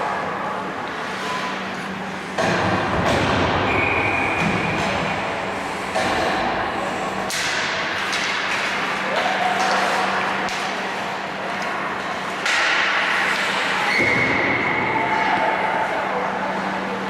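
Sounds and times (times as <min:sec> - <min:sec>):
hockey sticks and puck clacking: 0:00.8 - 0:15.2
faint voices of players: 0:13.5 - 0:17.0.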